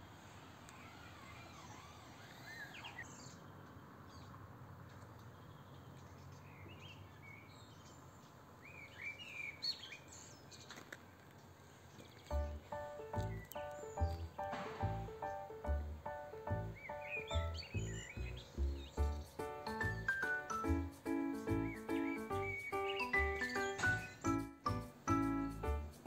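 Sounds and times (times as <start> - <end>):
soft outdoor hiss: 0.0 - 26.0
bird chirps and calls: 12.0 - 14.5, 16.7 - 20.7, 21.3 - 24.5
music: 12.3 - 26.0.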